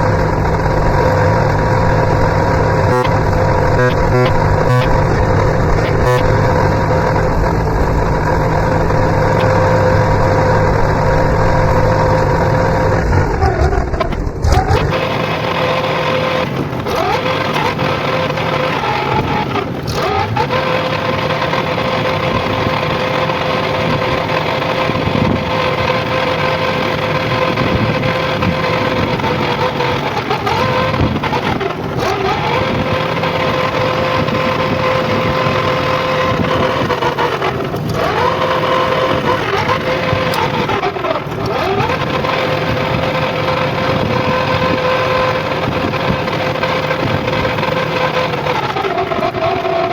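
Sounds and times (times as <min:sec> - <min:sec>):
deep rumble: 0:00.0 - 0:15.2
tractor engine running: 0:00.0 - 0:49.9.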